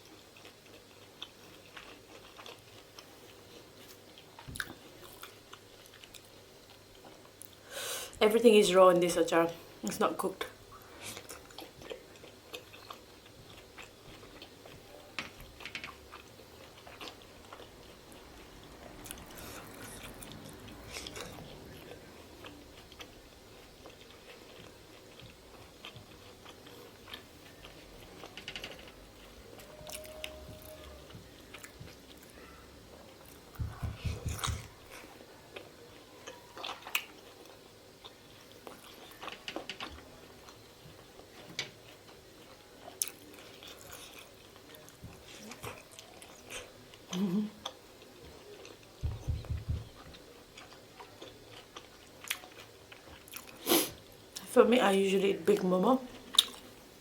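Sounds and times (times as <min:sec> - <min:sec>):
chewing and biting food: 0:00.0 - 0:07.6, 0:10.7 - 0:54.4, 0:56.1 - 0:56.7
low thuds: 0:33.6 - 0:34.6, 0:49.0 - 0:50.0.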